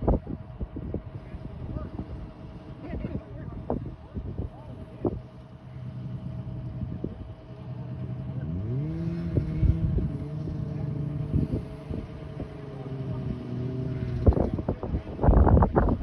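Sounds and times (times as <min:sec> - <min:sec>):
heavy equipment engine revving: 0:05.5 - 0:16.0.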